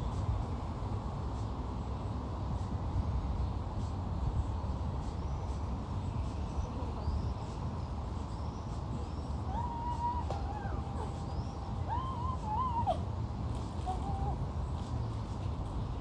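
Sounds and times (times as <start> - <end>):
wind noise on microphone: 0.0 - 16.0
faint birds chirping: 3.3 - 16.0
whistled call: 9.1 - 13.0.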